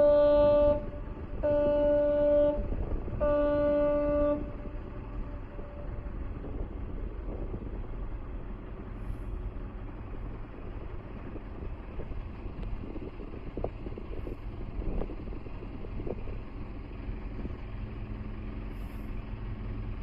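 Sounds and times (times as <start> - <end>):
ship's whistle blasts: 0.0 - 6.1
low steady rumble: 0.0 - 20.0.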